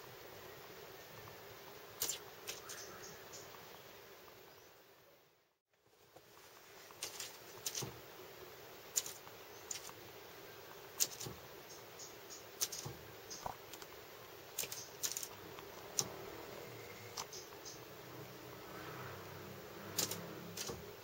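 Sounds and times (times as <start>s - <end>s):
faint steady hum: 0.0s - 21.0s
bird fluttering: 2.0s - 3.1s, 6.3s - 8.0s, 8.9s - 10.0s, 11.0s - 11.5s, 12.6s - 16.2s, 19.8s - 21.0s.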